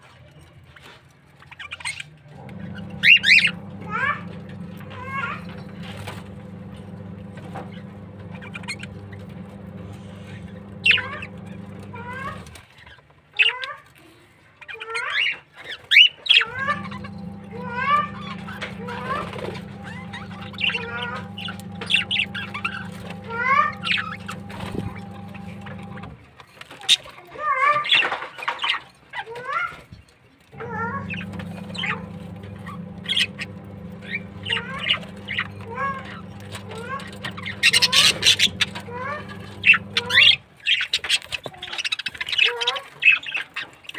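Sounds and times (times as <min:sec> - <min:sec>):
small birds chirping: 0:00.8 - 0:13.6, 0:14.6 - 0:26.1, 0:31.0 - 0:43.9
steady low hum: 0:02.4 - 0:12.5, 0:16.5 - 0:26.2, 0:30.5 - 0:40.4.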